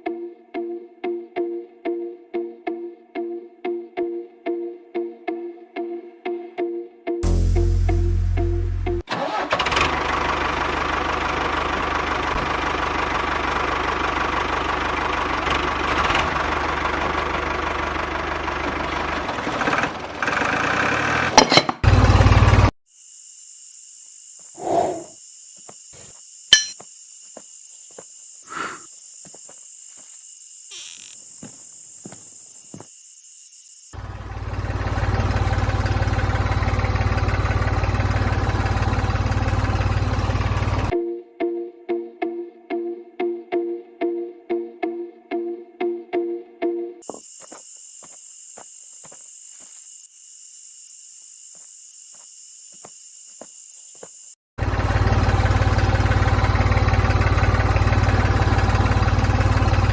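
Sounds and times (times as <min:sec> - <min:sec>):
small diesel engine running: 0:07.2 - 0:22.8, 0:34.0 - 0:40.9, 0:54.6 - 0:59.9.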